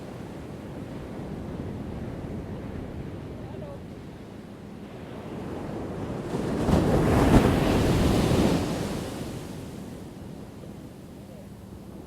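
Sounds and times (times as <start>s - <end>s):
ocean wave breaking on shore: 6.2s - 9.8s.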